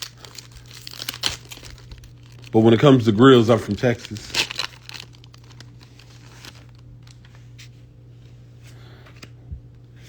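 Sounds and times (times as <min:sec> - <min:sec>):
cards and wrapping clicking and rustling: 0:00.0 - 0:07.6
steady low hum: 0:00.0 - 0:10.0.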